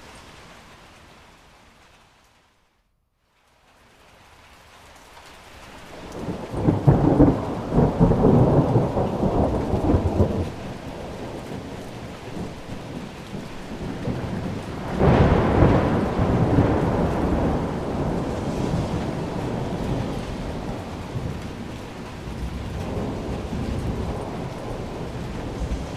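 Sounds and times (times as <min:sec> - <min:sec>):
steady rain: 0:00.0 - 0:25.9
rolling thunder: 0:06.0 - 0:25.9.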